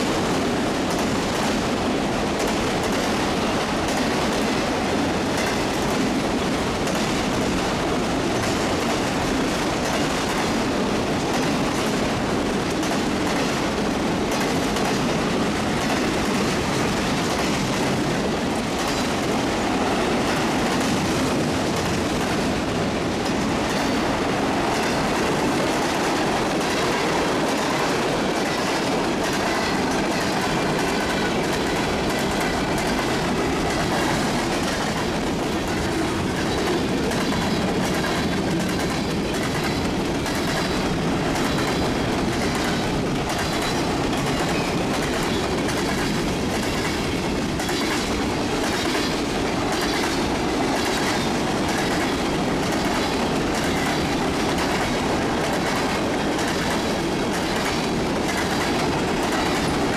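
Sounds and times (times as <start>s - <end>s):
clacks over rail joints: 0.0s - 59.9s
freight car wheels rumbling on rail: 0.0s - 59.9s.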